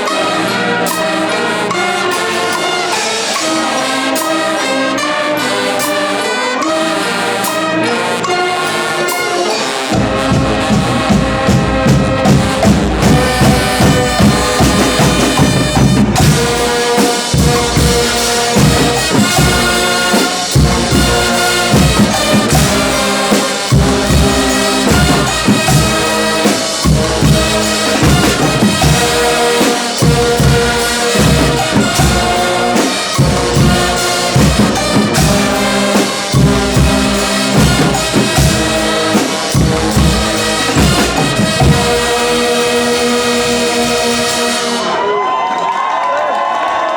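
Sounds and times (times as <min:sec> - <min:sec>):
loud brass playing: 0:00.0 - 0:46.9
drums keeping steady beat: 0:08.4 - 0:45.0.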